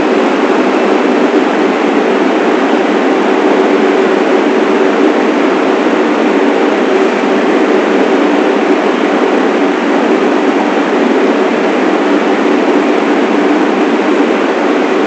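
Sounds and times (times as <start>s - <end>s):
steady hum: 0.0s - 15.0s
subway train rail noise: 0.0s - 15.0s.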